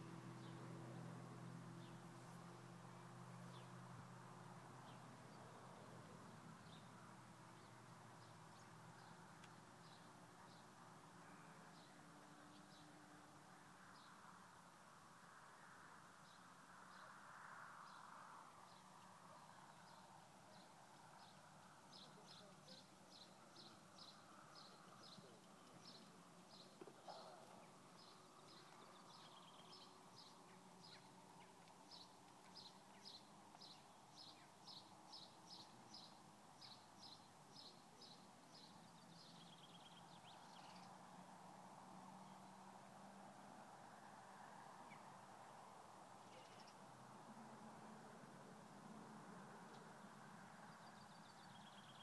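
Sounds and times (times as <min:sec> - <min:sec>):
small bird chirping: 0:46.2 - 0:46.9, 0:50.7 - 0:52.0.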